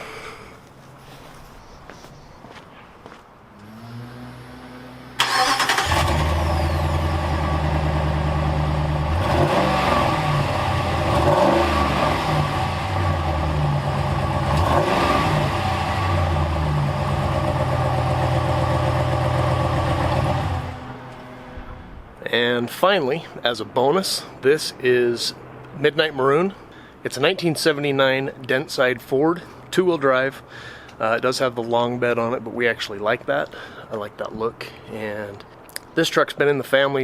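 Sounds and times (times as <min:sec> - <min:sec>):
pickup engine starting and running: 0:03.5 - 0:22.2.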